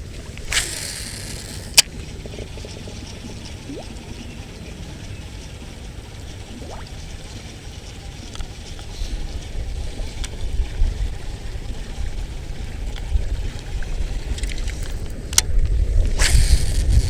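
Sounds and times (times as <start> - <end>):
faint clicks: 0.3 - 2.0
wind buffeting microphone: 9.1 - 17.0.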